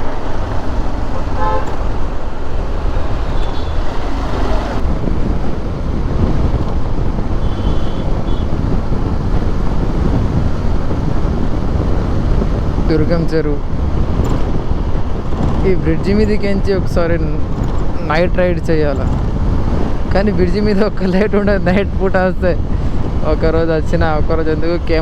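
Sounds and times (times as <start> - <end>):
wind and road noise: 0.0 - 25.0
horn toots: 1.1 - 2.0, 3.2 - 4.8, 7.3 - 8.6.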